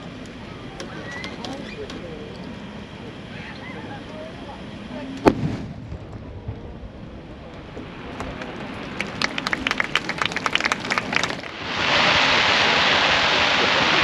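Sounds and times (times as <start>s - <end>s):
fireworks crackling: 5.2s - 14.0s
heavy rain: 8.3s - 14.0s.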